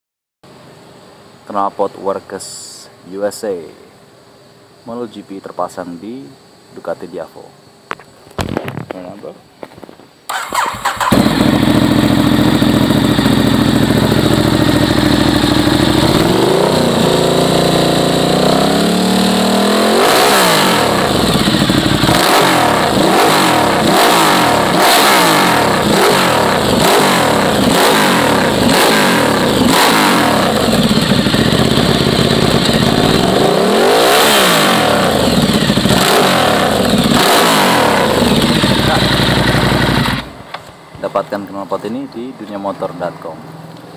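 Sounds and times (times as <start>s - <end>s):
motorcycle engine idling and revving: 10.3s - 40.6s.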